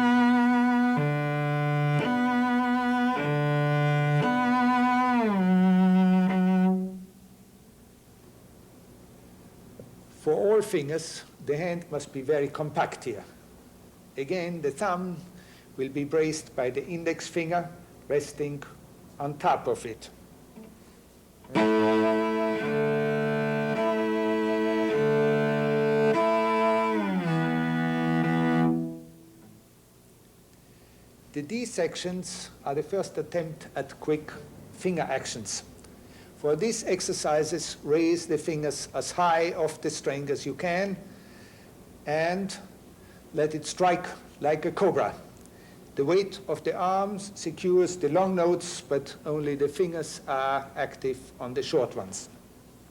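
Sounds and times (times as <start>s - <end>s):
cello bowed notes: 0.0s - 7.2s, 20.5s - 29.6s.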